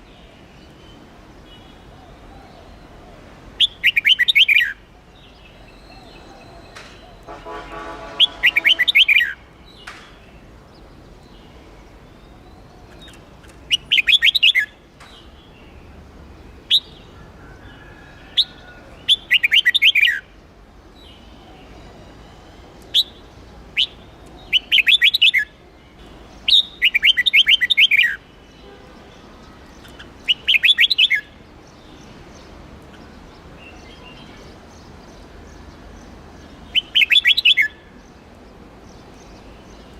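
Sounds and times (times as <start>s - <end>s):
bird singing high notes: 5.7s - 9.4s
sharp bird chirps: 12.9s - 14.7s, 23.8s - 25.5s, 29.8s - 31.3s.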